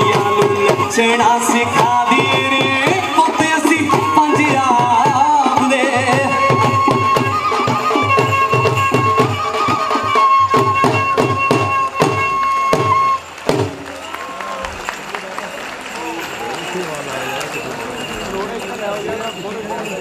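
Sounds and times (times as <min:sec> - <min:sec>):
fast steady drumbeat: 0:00.0 - 0:13.9.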